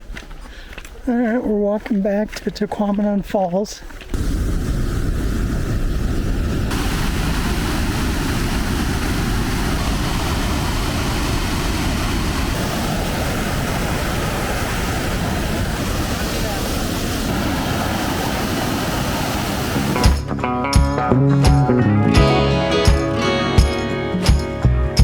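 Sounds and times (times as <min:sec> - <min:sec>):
waterfall rushing: 0:04.2 - 0:20.2.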